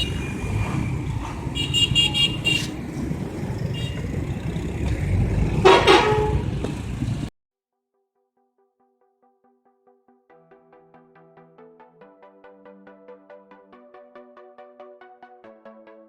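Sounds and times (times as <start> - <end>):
car horns honking: 0.0 - 7.0
low rumble of traffic: 0.0 - 7.3.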